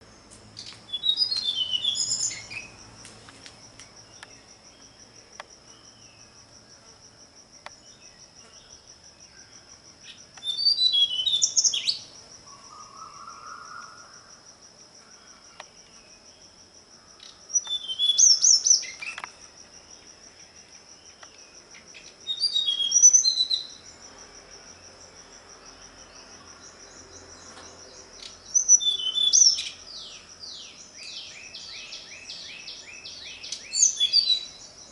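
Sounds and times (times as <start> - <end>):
high insect trill: 0.0 - 34.9
songbird warbling: 0.6 - 2.8, 10.1 - 14.1, 28.2 - 29.8.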